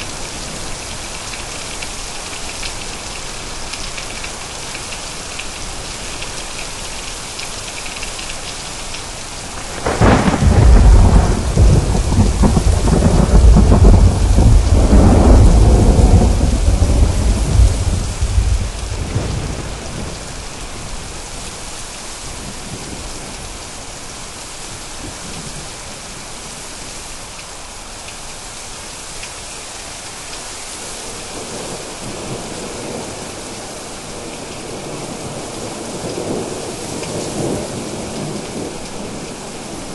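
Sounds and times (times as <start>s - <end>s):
heavy rain: 0.0s - 39.9s
thunder cracking and rumbling: 9.5s - 21.0s.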